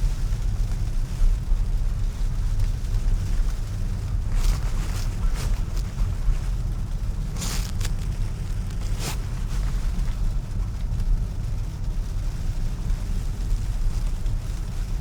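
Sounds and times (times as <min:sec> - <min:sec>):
tyres rumbling on snowy road: 0:00.0 - 0:15.0.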